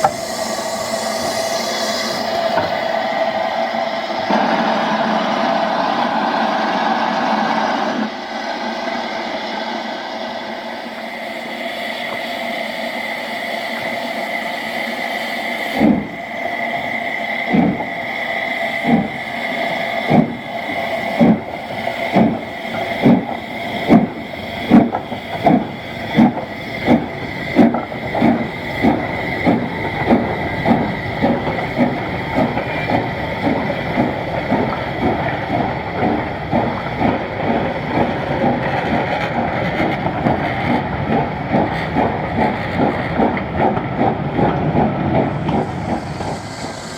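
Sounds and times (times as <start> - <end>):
steam hissing: 0.0 - 46.9
steam locomotive exhaust chuffs: 0.0 - 46.9.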